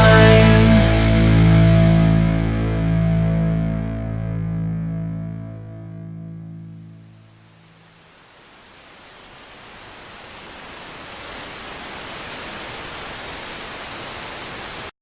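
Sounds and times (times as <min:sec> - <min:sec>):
static-like hiss: 0:06.6 - 0:14.9.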